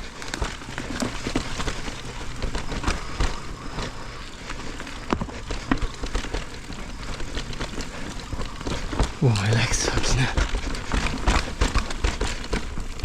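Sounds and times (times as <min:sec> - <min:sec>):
bike knocking and rattling: 0:00.0 - 0:09.3, 0:10.3 - 0:13.0
bike tyres on dirt: 0:00.0 - 0:13.0.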